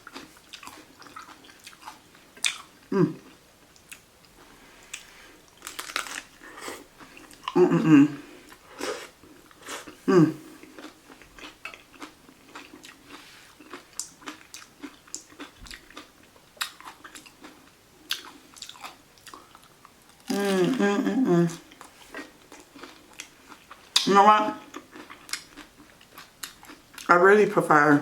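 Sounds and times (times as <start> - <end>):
chewing crunchy taco: 0.0 - 20.8, 21.5 - 27.2
short vocal sounds: 2.9 - 3.3, 7.5 - 8.3, 10.0 - 10.5, 20.3 - 21.6.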